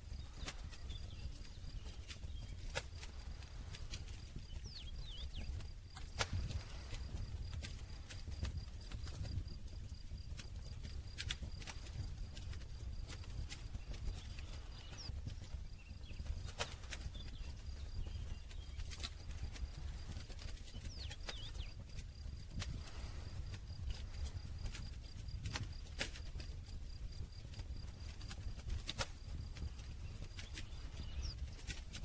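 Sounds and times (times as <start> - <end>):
campfire crackling and popping: 0.0 - 32.0
low rumble of burning fire: 0.0 - 32.0
campfire pops and snaps: 5.6 - 9.4, 11.1 - 12.0, 28.2 - 29.7.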